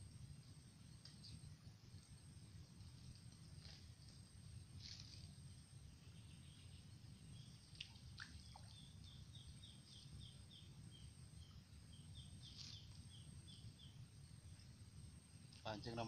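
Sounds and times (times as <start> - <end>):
bird chirping: 4.8 - 14.7.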